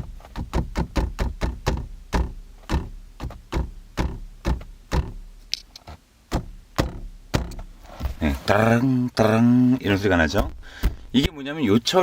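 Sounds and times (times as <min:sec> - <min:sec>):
headrest rattling knocks: 0:00.0 - 0:05.3, 0:06.3 - 0:08.2, 0:10.4 - 0:11.4.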